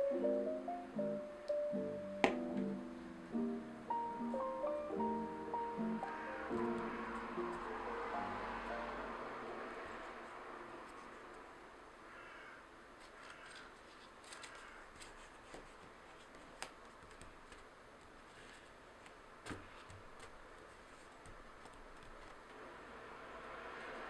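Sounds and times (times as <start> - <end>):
scissors cutting paper: 13.0 - 17.6.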